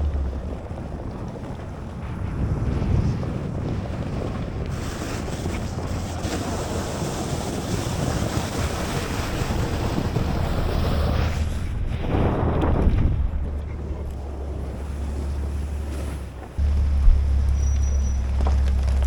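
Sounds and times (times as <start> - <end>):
vehicle engine and tyres rumbling: 0.0 - 19.0
tyres hissing on snow: 3.2 - 12.2, 14.6 - 19.0.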